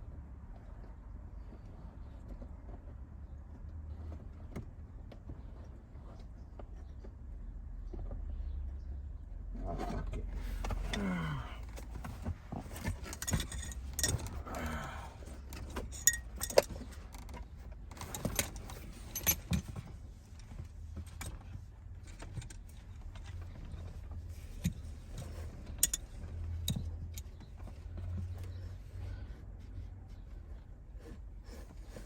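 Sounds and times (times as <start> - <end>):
metal tools clinking: 10.4 - 17.3, 17.9 - 19.8.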